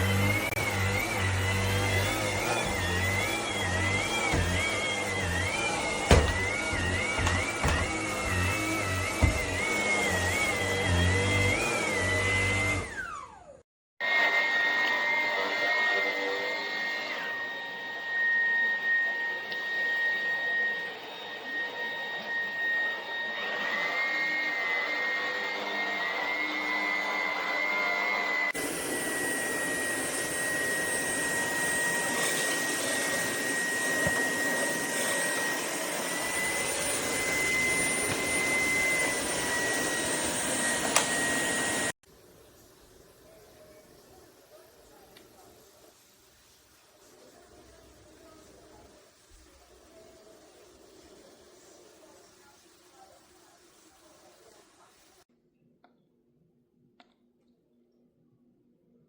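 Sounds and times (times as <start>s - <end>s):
stick vacuum motor whine: 0.0s - 42.0s.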